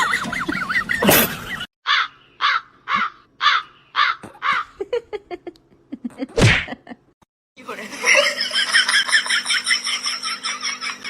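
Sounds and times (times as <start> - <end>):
harsh rasping animal calls: 1.9 - 4.8.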